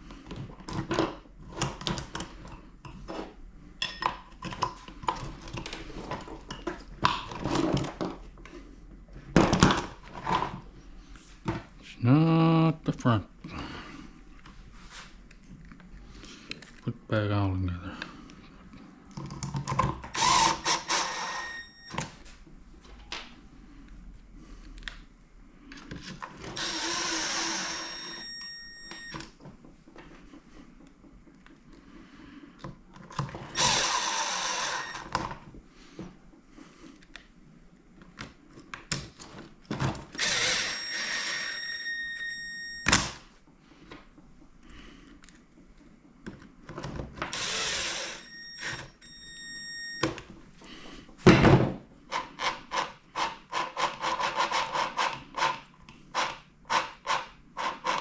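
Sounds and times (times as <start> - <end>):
cordless power driver running: 20.1 - 21.4, 26.5 - 28.2, 33.5 - 35.1, 40.2 - 41.6, 47.3 - 48.8.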